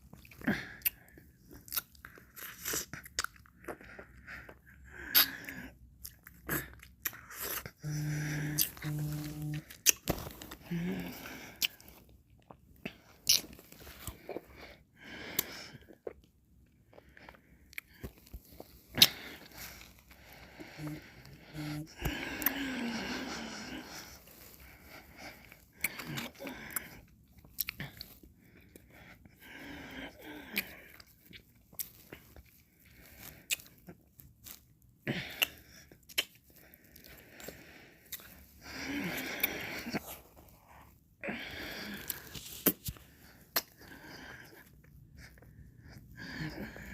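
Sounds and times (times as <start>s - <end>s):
mouth licking and chewing: 0.1s - 10.6s, 11.4s - 14.6s, 23.2s - 29.2s, 30.5s - 38.5s, 42.0s - 46.0s
wet mouth clicks and smacks: 35.4s - 36.5s, 42.5s - 43.7s.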